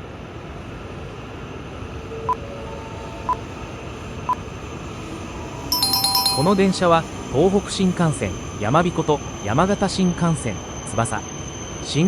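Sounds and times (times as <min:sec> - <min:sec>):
train running noise: 0:00.0 - 0:12.0
short high beeps: 0:05.7 - 0:06.9.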